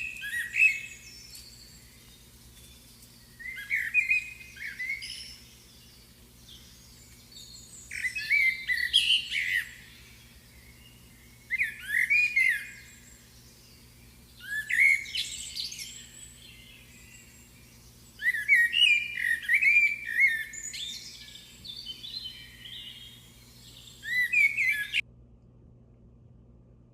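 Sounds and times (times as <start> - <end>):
bird chirps and trills: 0.0 - 25.0
faint low hum: 0.0 - 26.9.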